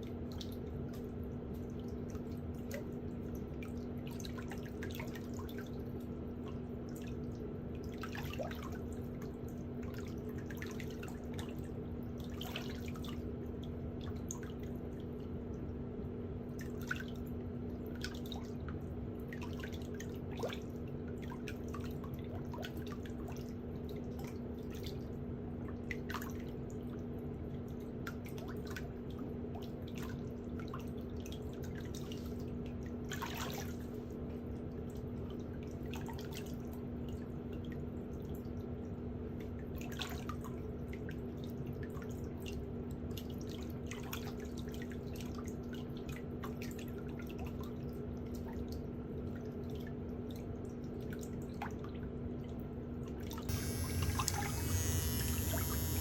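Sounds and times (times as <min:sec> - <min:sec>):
steady low hum: 0:53.5 - 0:56.0.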